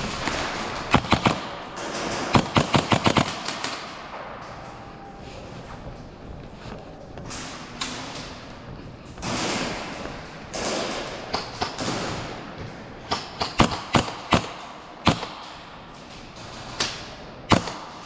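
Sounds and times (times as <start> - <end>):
airsoft gun shots: 0.0 - 4.2, 13.0 - 15.5, 17.5 - 18.0
rustling movement: 4.5 - 10.6.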